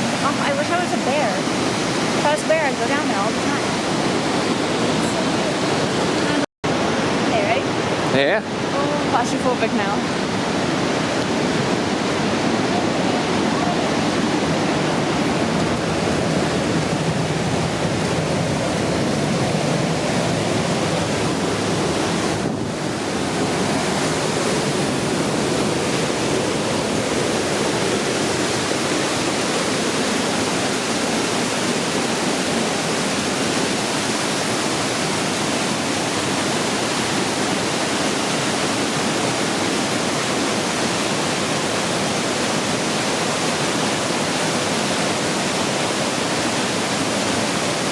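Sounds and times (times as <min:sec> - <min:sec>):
waterfall roaring: 0:00.0 - 0:47.9.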